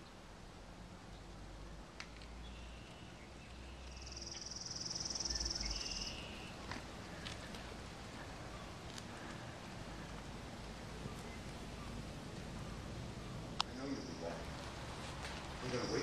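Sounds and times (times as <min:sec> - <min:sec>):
small bird trilling: 0:04.0 - 0:06.6.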